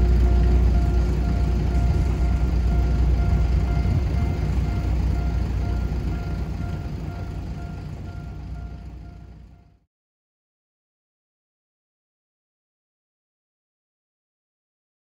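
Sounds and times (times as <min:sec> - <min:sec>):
diesel train engine and rail rumble: 0:00.0 - 0:09.9.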